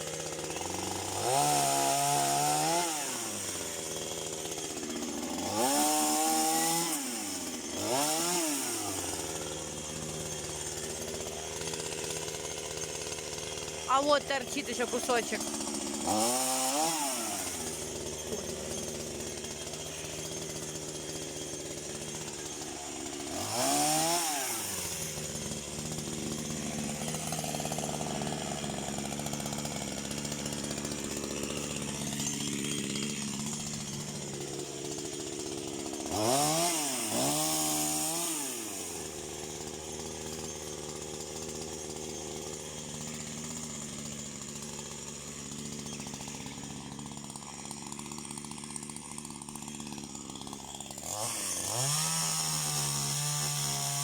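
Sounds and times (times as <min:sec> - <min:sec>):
chainsaw engine idling and revving: 0:00.0 - 0:54.0.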